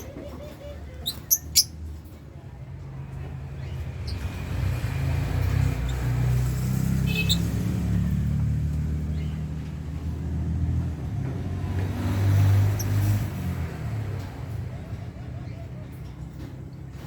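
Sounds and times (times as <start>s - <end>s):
vehicle engine rumbling: 0.0s - 17.0s
bird chirps: 0.9s - 1.8s, 7.1s - 7.6s.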